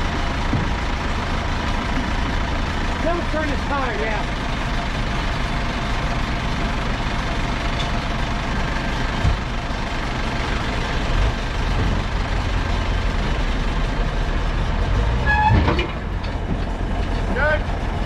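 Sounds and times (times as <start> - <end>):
diesel engine idling: 0.0 - 18.0
dull knocks: 0.4 - 0.9.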